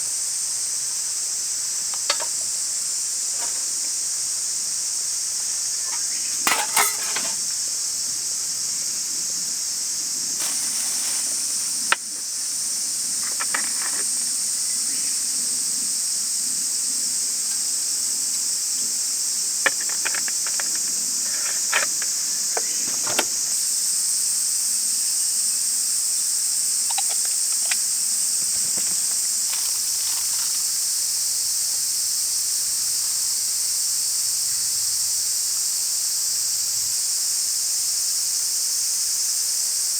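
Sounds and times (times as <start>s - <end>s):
insects droning: 0.0s - 39.9s
sharp clicks and knocks: 1.9s - 2.5s, 19.7s - 23.4s, 26.9s - 27.8s.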